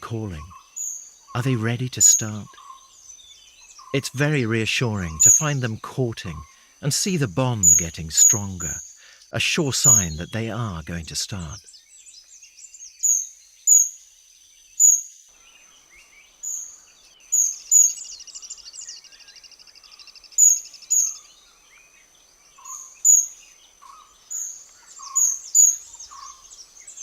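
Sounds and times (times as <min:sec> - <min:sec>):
kingfishers calling: 0:00.0 - 0:11.6, 0:22.6 - 0:27.0.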